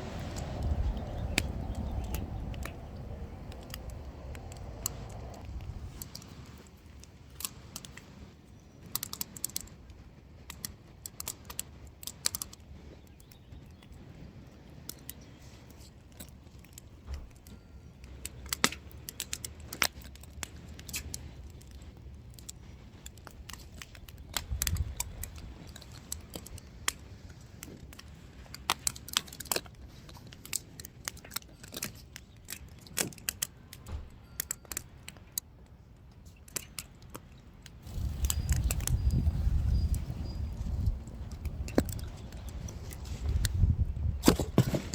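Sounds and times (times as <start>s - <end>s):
low steady rumble: 0.0s - 6.0s, 37.8s - 44.3s
firewood crackling and snapping: 0.0s - 35.4s, 36.0s - 44.9s.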